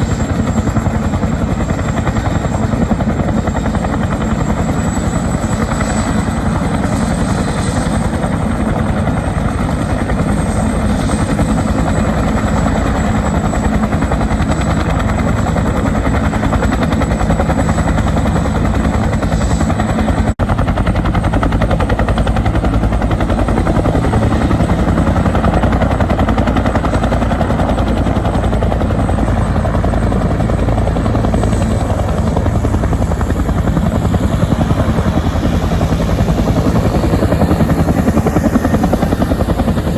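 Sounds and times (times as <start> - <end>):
helicopter rotor beat: 0.0 - 39.9
high turbine whine: 2.7 - 39.9.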